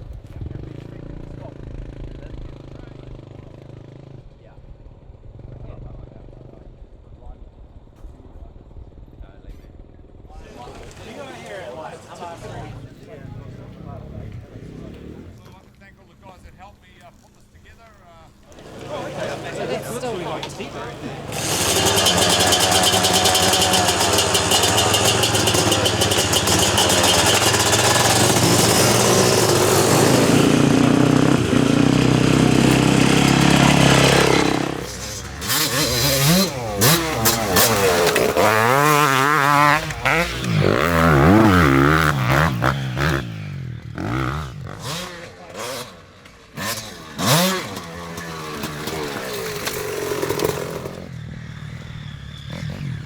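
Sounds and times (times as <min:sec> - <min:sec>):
dirt bike engine revving: 0:10.5 - 0:15.4, 0:18.5 - 0:53.0.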